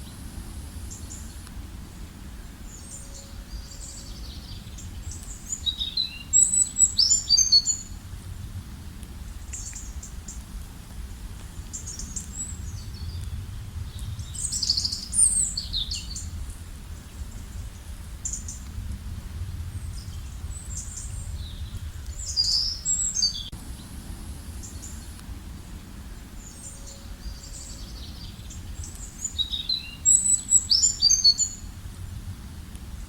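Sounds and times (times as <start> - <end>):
low outdoor rumble: 0.0 - 33.0
songbirds chirping and singing: 0.9 - 8.0, 19.8 - 24.0, 24.6 - 31.7.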